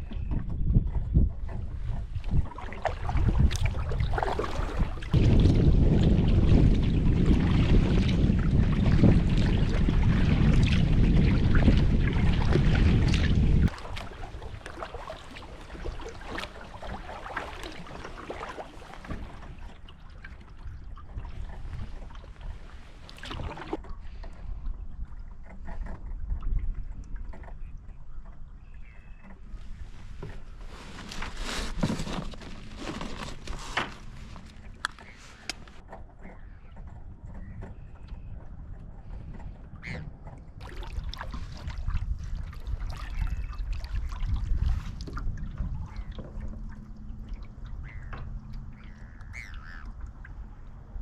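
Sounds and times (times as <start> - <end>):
paddle strokes in water: 0.0 - 51.0
wind rumbling on microphone: 0.0 - 51.0
water splashes and drips: 2.2 - 24.5, 40.6 - 51.0
bird calls: 27.5 - 29.6, 33.8 - 38.5, 47.7 - 50.2.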